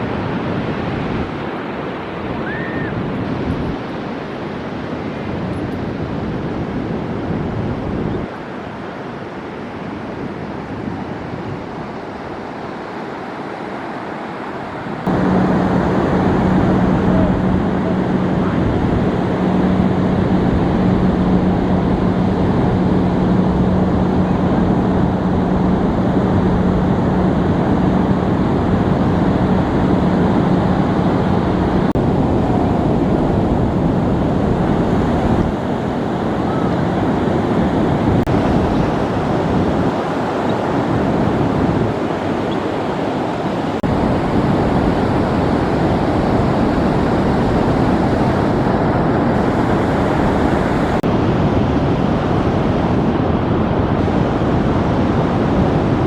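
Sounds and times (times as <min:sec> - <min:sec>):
ocean surf washing onto beach: 0:00.0 - 0:56.0
wind noise on microphone: 0:00.0 - 0:56.0
steady low hum: 0:14.8 - 0:56.0.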